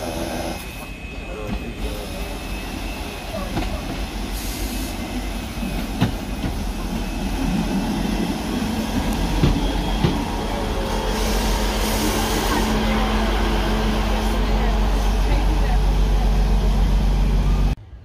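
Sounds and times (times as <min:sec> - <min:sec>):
diesel train hum: 0:00.0 - 0:18.0.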